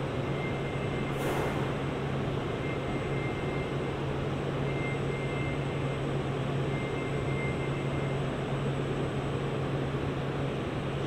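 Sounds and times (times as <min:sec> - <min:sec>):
short burst of hiss: 0:01.2 - 0:01.8
train hum and rushing: 0:01.2 - 0:02.6.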